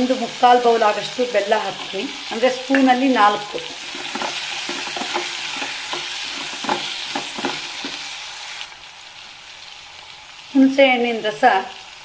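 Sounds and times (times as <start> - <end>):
vegetables sizzling in oil: 0.0 - 12.0
wooden spatula knocking a pot: 3.9 - 8.0.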